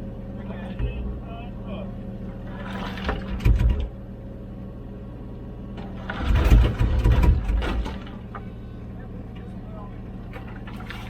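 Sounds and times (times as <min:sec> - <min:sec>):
excavator diesel engine running: 0:00.0 - 0:11.0
bucket clunking and scraping: 0:02.5 - 0:03.9, 0:05.8 - 0:09.6, 0:10.2 - 0:11.0.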